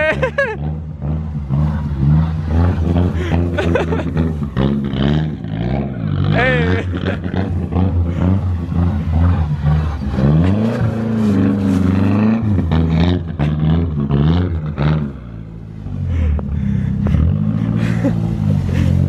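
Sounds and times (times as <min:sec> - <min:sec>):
turbocharged car engine revving: 0:00.0 - 0:19.0.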